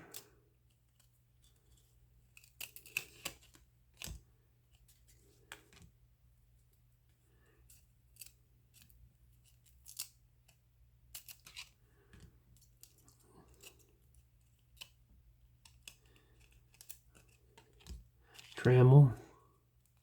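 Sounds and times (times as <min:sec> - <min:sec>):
trading cards clicking and snapping: 0:02.4 - 0:04.2, 0:09.5 - 0:14.0, 0:14.6 - 0:15.0, 0:15.6 - 0:18.6.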